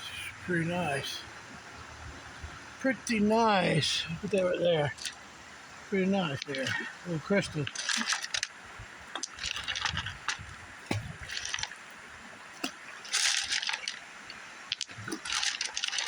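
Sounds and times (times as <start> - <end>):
water splashing and sloshing: 0.4 - 16.0
stones knocking together: 9.2 - 11.7, 14.7 - 16.0.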